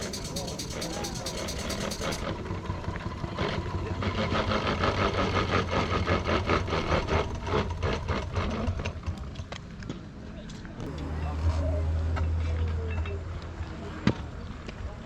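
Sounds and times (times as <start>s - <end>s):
steam locomotive chuffing: 0.0s - 9.4s.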